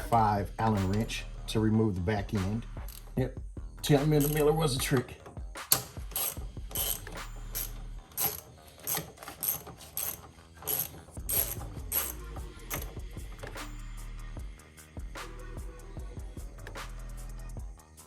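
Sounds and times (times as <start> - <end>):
ratchet wrench clicking: 2.8 - 3.2, 3.9 - 4.8, 5.6 - 14.2.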